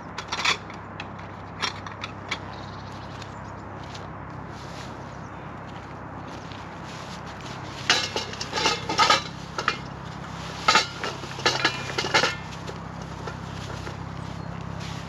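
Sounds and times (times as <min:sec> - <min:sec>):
metal camp gear clattering: 0:00.0 - 0:02.7, 0:07.3 - 0:15.0.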